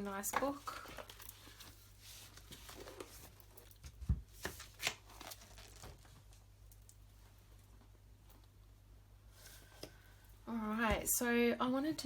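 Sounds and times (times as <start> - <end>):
paper rustling: 4.4 - 6.4.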